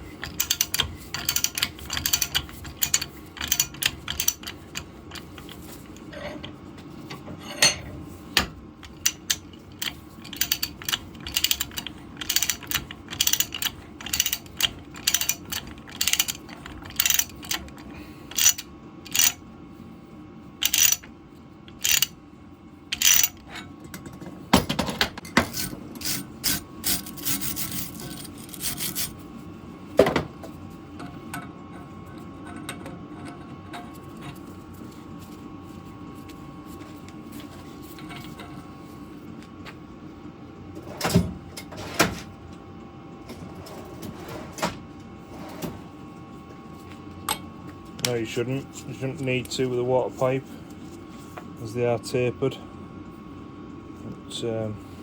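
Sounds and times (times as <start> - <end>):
ratchet clicking: 0.2 - 4.6, 8.9 - 17.6, 18.4 - 19.4, 20.6 - 21.0, 21.7 - 22.1, 23.0 - 23.3.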